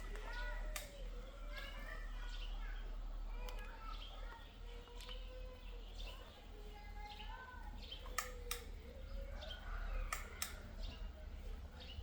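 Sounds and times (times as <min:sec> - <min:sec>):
sharp clicks: 0:00.0 - 0:01.0, 0:08.0 - 0:08.7, 0:10.1 - 0:10.7.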